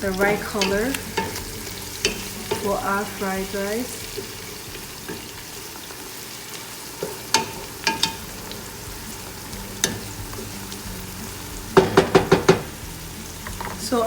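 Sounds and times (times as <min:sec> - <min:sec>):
onions sizzling in oil: 0:00.0 - 0:14.0
sharp knocks: 0:11.8 - 0:12.8.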